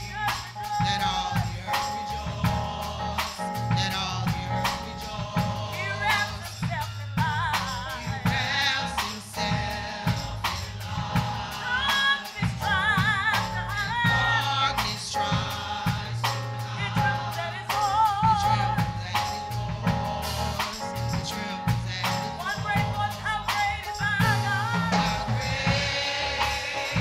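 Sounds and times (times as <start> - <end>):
bass: 0.0 - 27.0
drum-kit beats: 0.0 - 27.0
gospel choir singing: 0.0 - 27.0.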